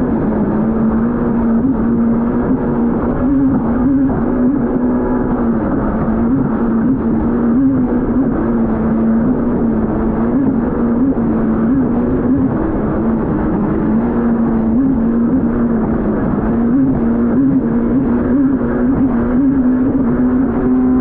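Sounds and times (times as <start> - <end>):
personal watercraft engine: 0.0 - 21.0
water rushing along hull: 0.0 - 21.0.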